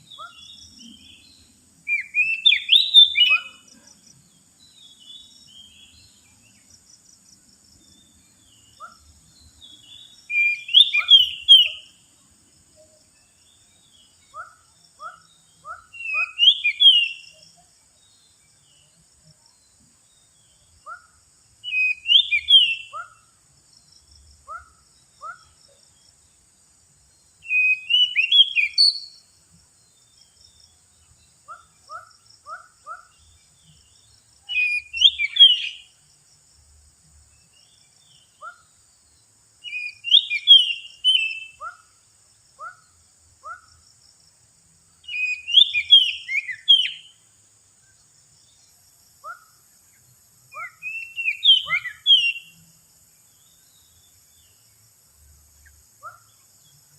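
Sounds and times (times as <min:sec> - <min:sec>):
bird whistled song phrase: 0:01.9 - 0:03.6, 0:10.3 - 0:11.9, 0:14.3 - 0:17.4, 0:21.6 - 0:23.2, 0:27.4 - 0:29.2, 0:34.5 - 0:35.9, 0:39.6 - 0:41.8, 0:45.0 - 0:47.2, 0:50.5 - 0:52.6.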